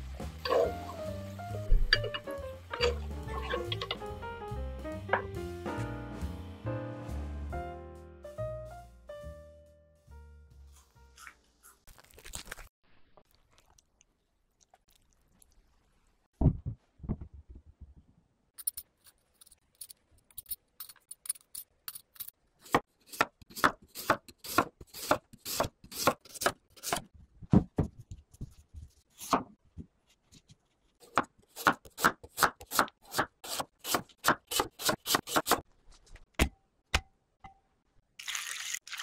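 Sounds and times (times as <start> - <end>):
knife slicing potato on board: 21.9 - 27.1, 30.4 - 35.6.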